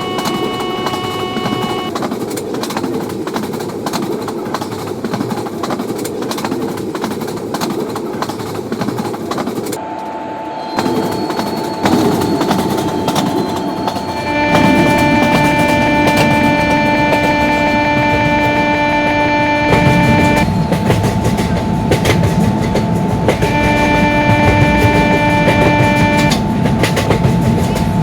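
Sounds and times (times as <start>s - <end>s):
steady tone: 0.0s - 1.9s, 9.8s - 26.7s
wheels clicking over rail joints: 0.0s - 9.8s, 19.6s - 28.0s
train passing at speed: 0.0s - 28.0s.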